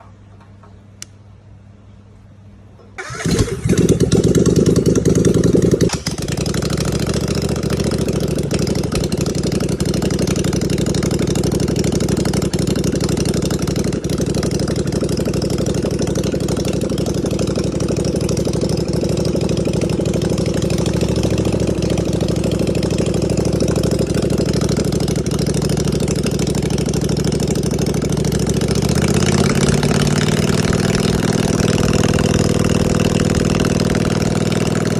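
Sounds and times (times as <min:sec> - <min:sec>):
engine starting and idling: 0:02.8 - 0:34.9.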